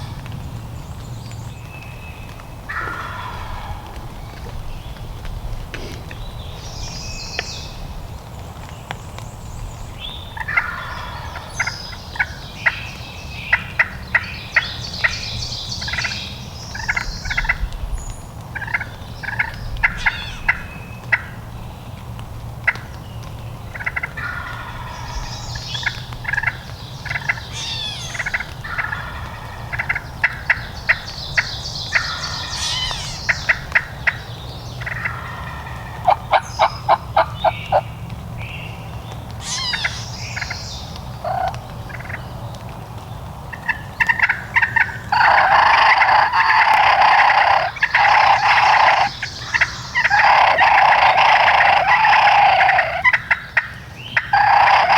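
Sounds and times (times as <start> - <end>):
turkey gobbling: 2.7 - 4.6, 18.6 - 21.3, 23.7 - 37.8, 39.4 - 40.6, 41.2 - 42.2, 43.6 - 54.9
low background rumble: 16.6 - 46.6.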